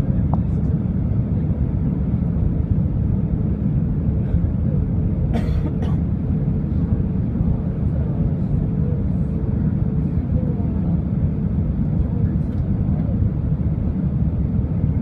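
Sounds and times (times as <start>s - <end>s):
jet airliner cabin rumble: 0.0s - 15.0s
passenger coughing: 5.3s - 6.2s.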